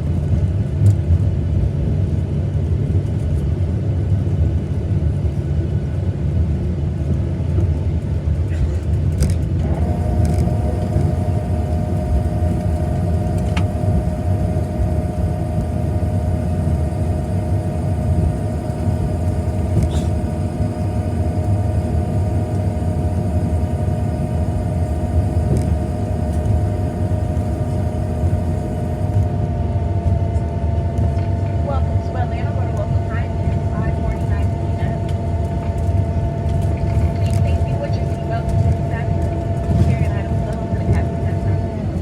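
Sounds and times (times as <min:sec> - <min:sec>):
jet engine cabin rumble: 0:00.0 - 0:42.0
steady whine: 0:09.3 - 0:42.0.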